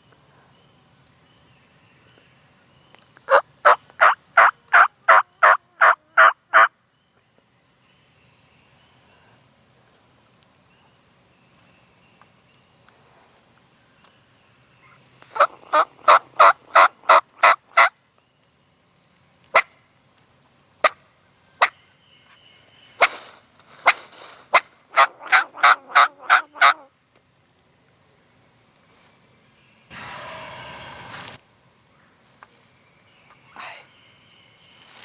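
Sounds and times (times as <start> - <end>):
rough noisy turkey call: 3.3 - 6.7, 14.8 - 18.0, 23.0 - 26.9, 29.9 - 31.4
turkey clucking: 3.3 - 6.7, 15.3 - 17.9, 23.8 - 26.8
wild turkey yelping: 3.3 - 6.7, 14.8 - 17.9, 23.8 - 26.9.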